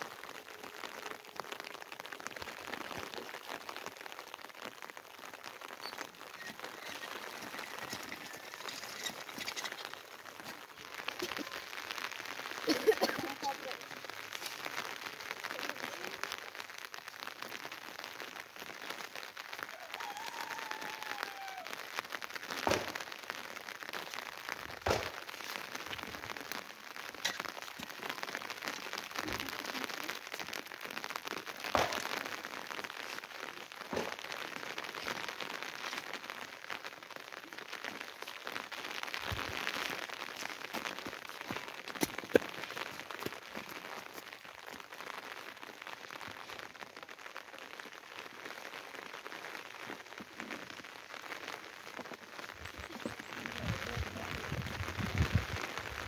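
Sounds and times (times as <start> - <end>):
rain pattering on hard surface: 0.0 - 56.0.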